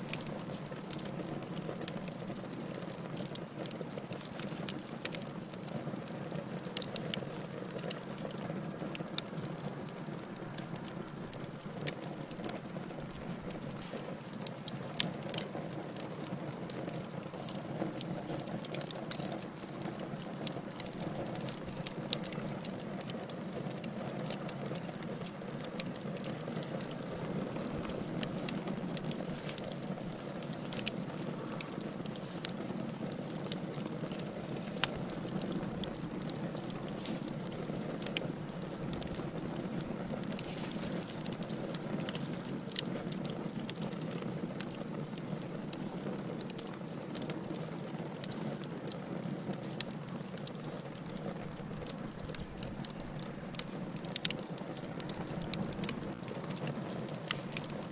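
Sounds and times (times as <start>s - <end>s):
wood fire crackling and popping: 0.0s - 57.9s
low rush of flame: 25.7s - 46.5s.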